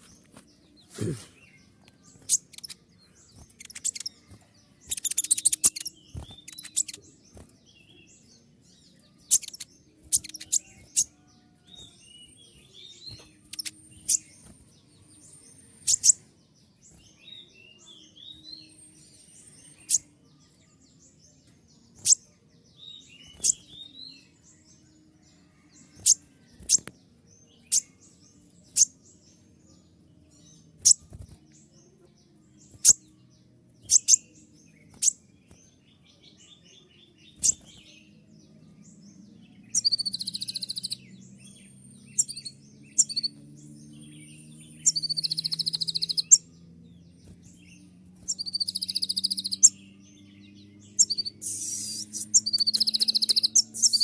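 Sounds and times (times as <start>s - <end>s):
sharp high bird chirps: 1.4s - 20.2s, 21.0s - 24.7s, 27.6s - 29.3s, 30.4s - 31.3s, 32.6s - 33.1s, 33.8s - 35.4s, 37.2s - 38.2s, 39.6s - 46.6s, 47.2s - 54.0s
buzzy trilled bird bursts: 51.4s - 52.4s.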